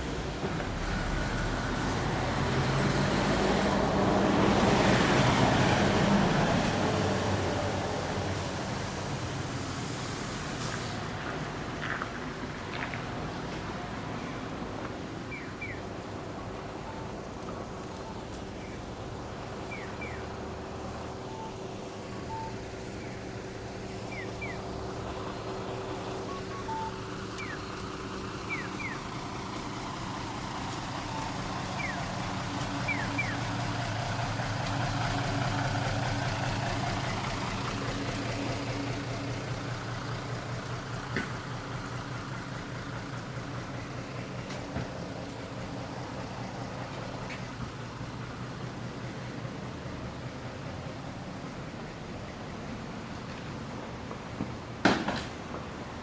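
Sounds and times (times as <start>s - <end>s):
vehicle passing by: 0.0s - 14.8s
vehicle engine running: 14.4s - 54.7s.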